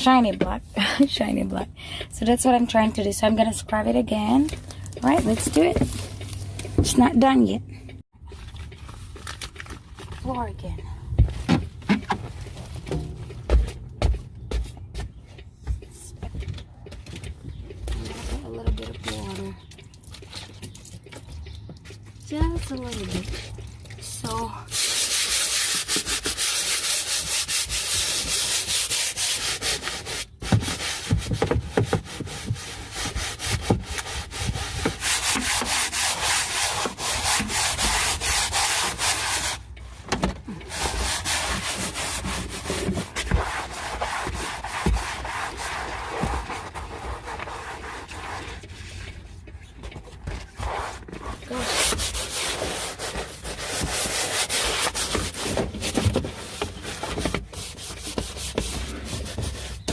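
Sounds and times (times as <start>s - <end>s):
hand scrubbing rough wet floor: 22.3s - 39.7s, 40.7s - 48.9s, 50.6s - 59.9s.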